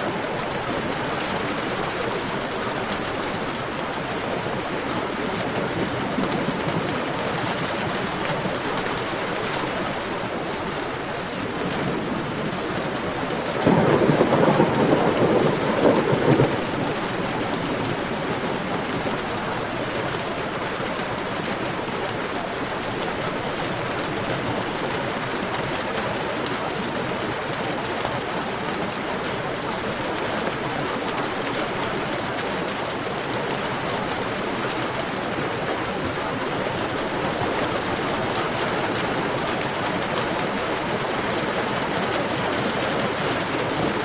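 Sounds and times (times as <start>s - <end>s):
heavy rain falling: 0.0s - 44.0s
thunder clap rumbling: 13.3s - 19.1s.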